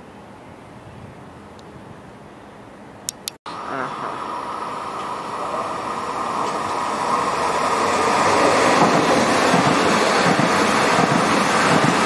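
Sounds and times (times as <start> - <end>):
electric train rolling past: 3.5 - 12.0.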